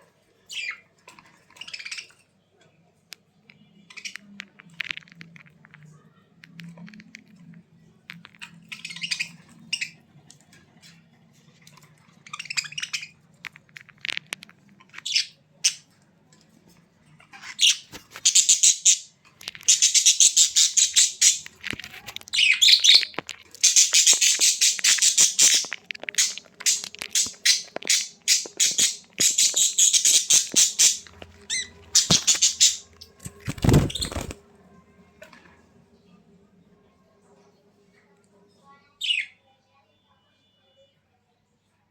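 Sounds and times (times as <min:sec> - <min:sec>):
bird squawking: 0:22.3 - 0:32.9.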